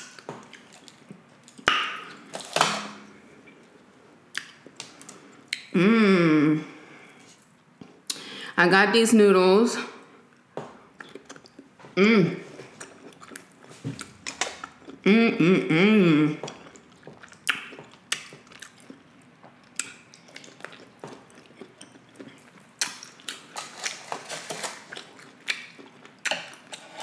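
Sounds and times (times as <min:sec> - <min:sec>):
person humming mmm: 0:05.7 - 0:07.1, 0:11.9 - 0:12.6, 0:15.0 - 0:16.5
chewing with mouth clicks: 0:10.3 - 0:11.8, 0:12.5 - 0:15.0, 0:16.4 - 0:26.8.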